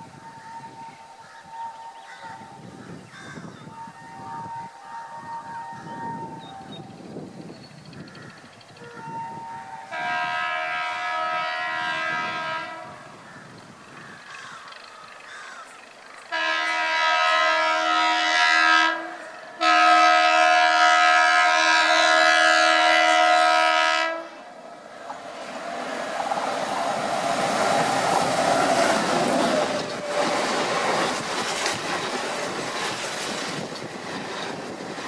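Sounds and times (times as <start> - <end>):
train horn blasts: 3.6 - 6.9, 8.8 - 13.2, 16.3 - 24.6.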